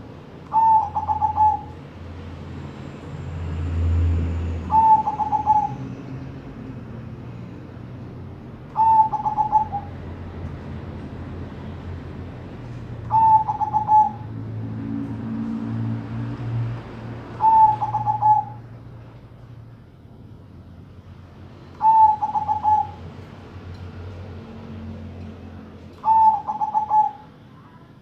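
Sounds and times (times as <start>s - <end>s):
doves cooing: 0.5s - 1.7s, 4.7s - 5.8s, 8.7s - 10.0s, 13.1s - 14.4s, 17.4s - 18.6s, 21.8s - 23.0s, 26.0s - 27.3s.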